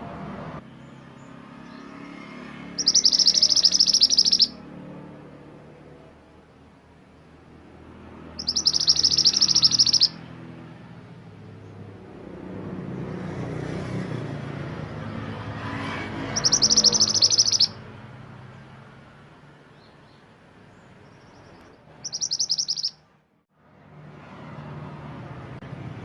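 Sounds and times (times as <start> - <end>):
songbird trilling: 2.8 - 4.6, 8.4 - 10.2, 16.2 - 17.8, 21.0 - 23.0.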